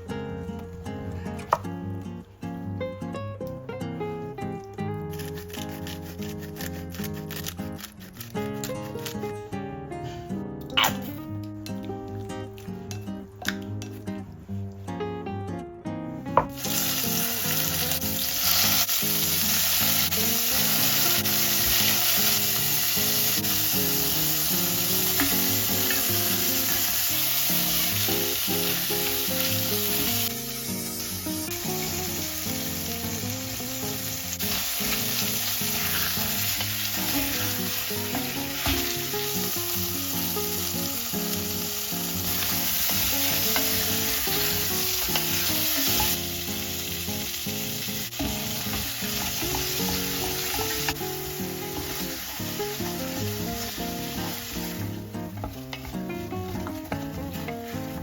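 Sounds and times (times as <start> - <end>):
soft background music: 0.0 - 58.0
food sizzling in a pan: 5.1 - 9.2, 16.4 - 58.0.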